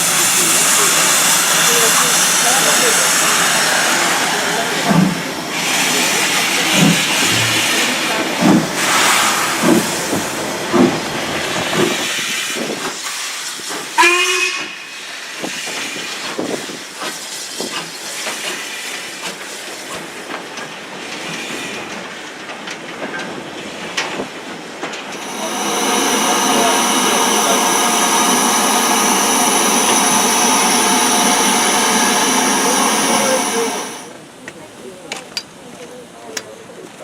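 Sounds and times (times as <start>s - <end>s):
steam locomotive hissing: 0.0s - 22.5s, 23.3s - 34.3s
short train whistle: 14.0s - 15.0s
locomotive puffs: 25.1s - 34.2s.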